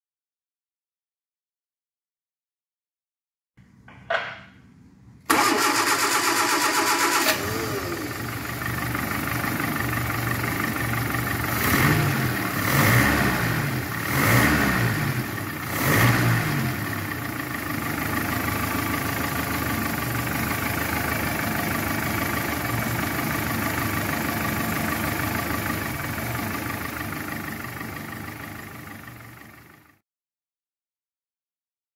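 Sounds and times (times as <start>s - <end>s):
car engine starting: 5.2s - 30.0s
engine revving: 5.3s - 8.6s, 11.2s - 17.2s
engine idling: 5.3s - 30.0s.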